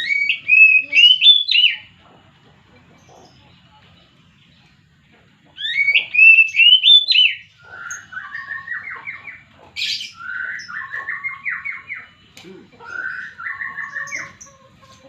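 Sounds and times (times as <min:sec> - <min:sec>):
bird singing whistles: 0:00.0 - 0:01.9, 0:05.6 - 0:09.2, 0:09.8 - 0:12.2, 0:12.8 - 0:14.4.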